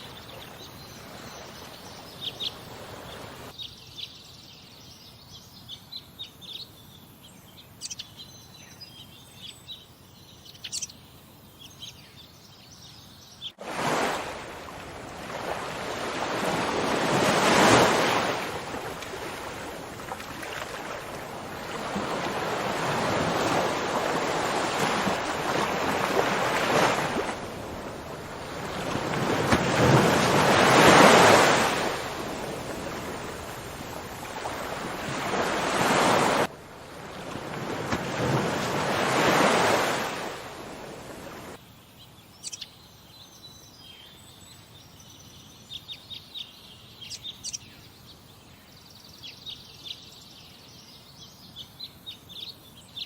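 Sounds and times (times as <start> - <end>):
sea waves washing ashore: 0.0 - 3.6, 13.6 - 41.6
wind: 0.0 - 53.0.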